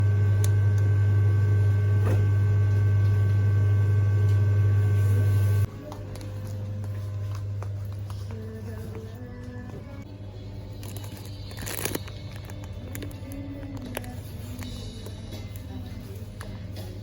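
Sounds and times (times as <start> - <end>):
loud steady low hum: 0.0 - 13.0.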